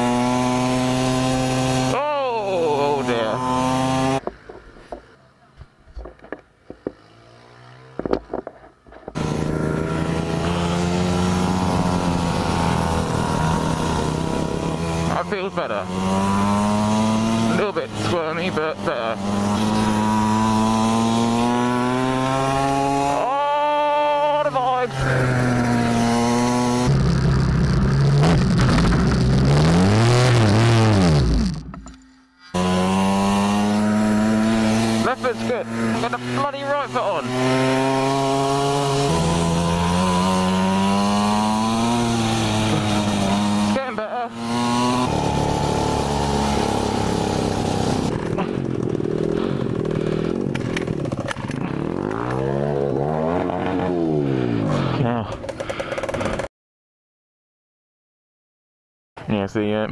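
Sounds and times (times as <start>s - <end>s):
mini moto engine revving: 0.0s - 4.6s, 6.7s - 31.7s, 32.5s - 56.5s
knocks and thump: 4.2s - 7.0s, 8.0s - 9.2s.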